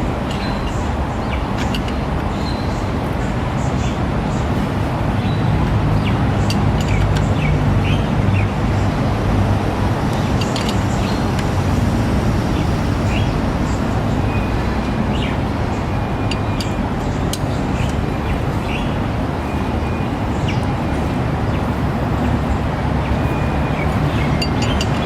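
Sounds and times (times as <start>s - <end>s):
traffic rumble: 0.0s - 25.0s
small birds chirping: 0.2s - 8.6s.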